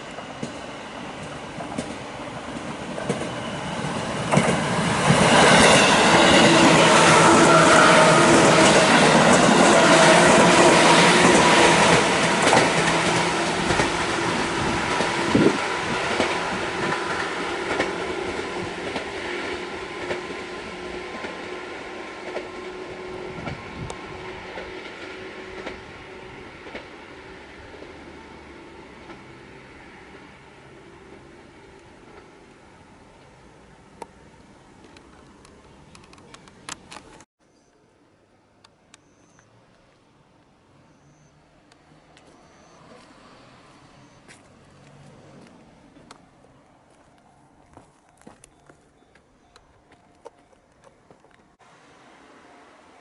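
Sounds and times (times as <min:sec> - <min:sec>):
train wheels clattering: 0:00.0 - 0:27.0.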